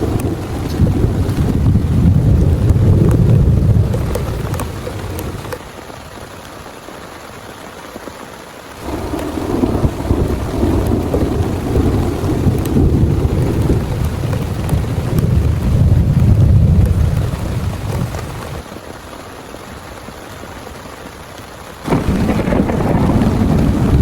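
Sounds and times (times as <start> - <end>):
thunder rumbling: 0.0 - 5.6, 8.8 - 18.7, 21.8 - 24.0
heavy rain: 0.0 - 24.0.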